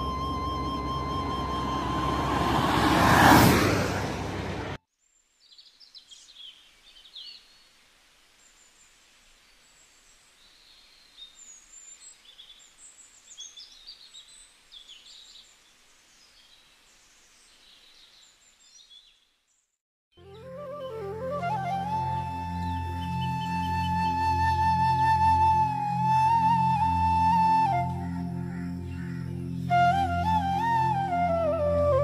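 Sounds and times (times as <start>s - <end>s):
songbirds chirping: 5.0s - 19.8s, 20.8s - 25.3s, 26.0s - 31.3s
steady background hiss: 5.2s - 18.8s.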